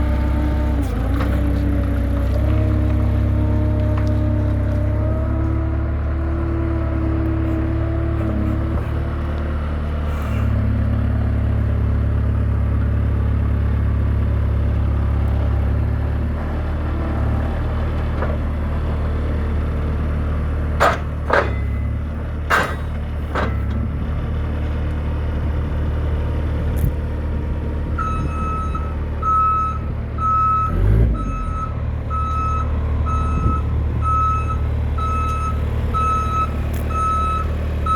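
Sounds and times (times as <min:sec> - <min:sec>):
diesel engine running: 0:00.0 - 0:37.9
metal clanks and squeaks: 0:20.8 - 0:23.8
reversing alarm beeping: 0:28.0 - 0:37.9.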